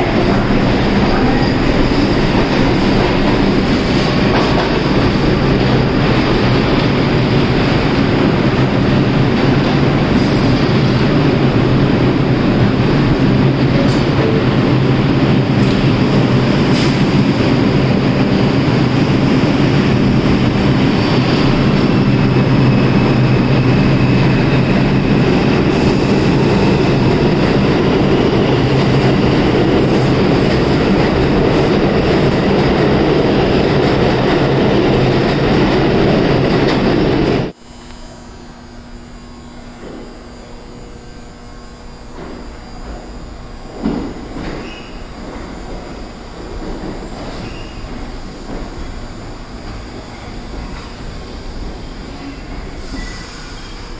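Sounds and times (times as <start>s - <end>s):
subway train wheels rumbling: 0.0s - 53.9s
faint high squeal: 52.2s - 53.9s.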